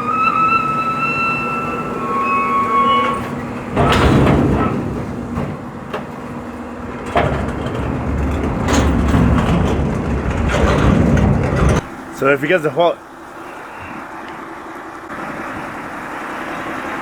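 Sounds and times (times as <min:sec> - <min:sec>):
high steady squeal: 0:00.0 - 0:05.4
garbage truck running: 0:00.0 - 0:17.0.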